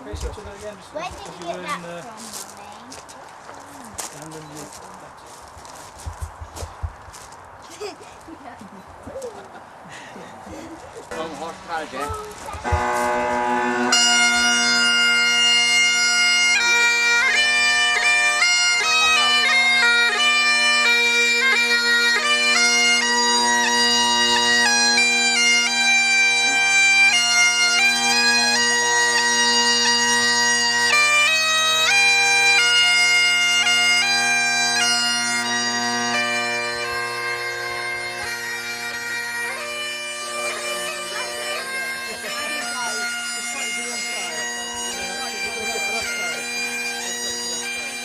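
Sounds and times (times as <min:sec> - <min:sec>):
bagpipes playing: 0:11.0 - 0:48.0.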